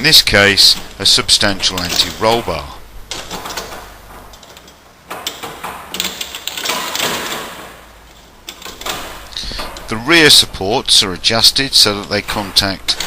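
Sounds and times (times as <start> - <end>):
metal parts rattling and clattering: 0.7 - 9.9.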